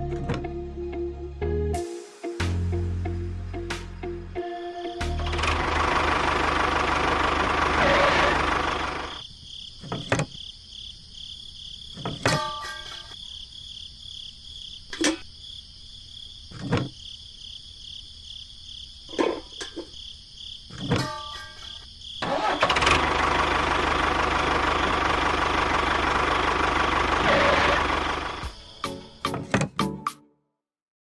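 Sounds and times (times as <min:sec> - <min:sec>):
high chirping background: 0:02.7 - 0:05.3
engine running loudly: 0:05.0 - 0:09.2, 0:22.6 - 0:28.5.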